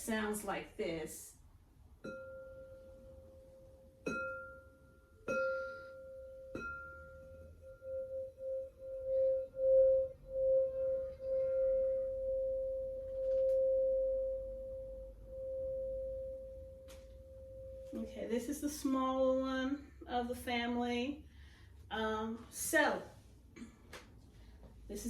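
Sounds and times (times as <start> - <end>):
crystal singing bowl ringing: 2.0 - 18.4.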